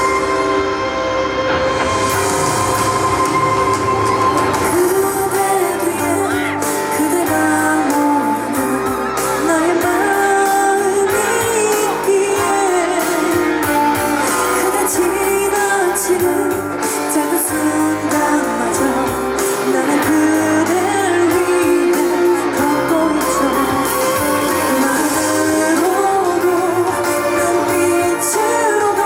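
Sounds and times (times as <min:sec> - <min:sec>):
amplified backing music with guitar: 0:00.0 - 0:29.0
woman singing pop: 0:04.2 - 0:29.0.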